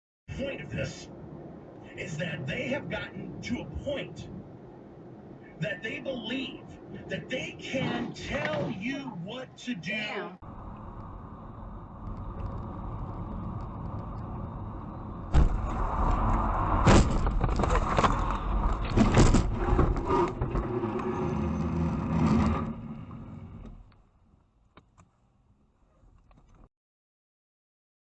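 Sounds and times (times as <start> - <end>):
car driving rumble: 0.3 - 9.4, 10.4 - 24.1
sharp knocks and bangs: 15.3 - 16.2, 16.8 - 20.6.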